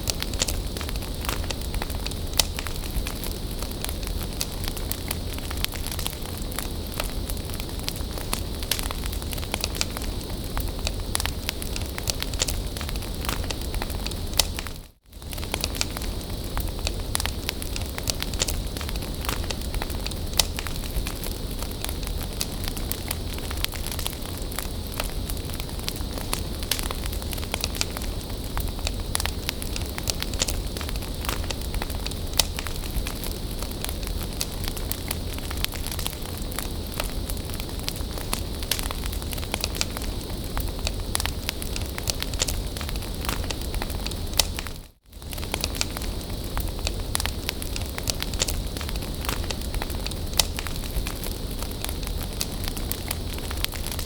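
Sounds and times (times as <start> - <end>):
bonfire burning: 0.0 - 54.0
burning wood crackling: 0.0 - 54.0.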